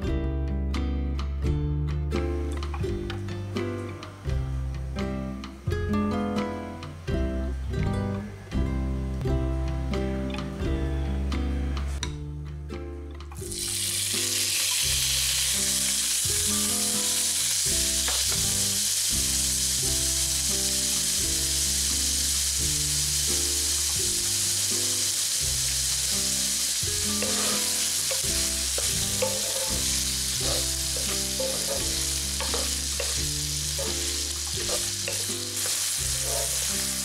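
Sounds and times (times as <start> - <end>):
soft background music: 0.0 - 37.0
pork sizzling in a frying pan: 13.4 - 37.0
wooden spatula stirring: 27.2 - 29.8, 30.4 - 36.6.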